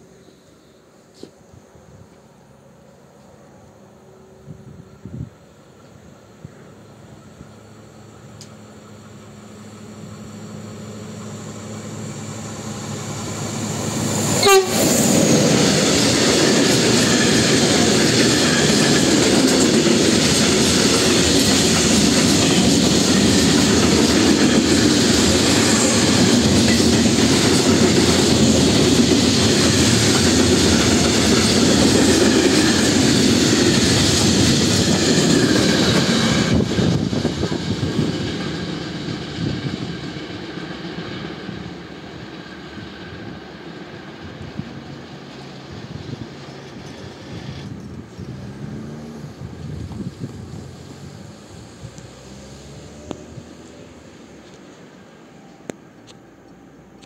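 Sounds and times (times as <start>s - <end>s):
diesel locomotive passing: 0.0s - 57.0s
train horn: 14.2s - 15.2s.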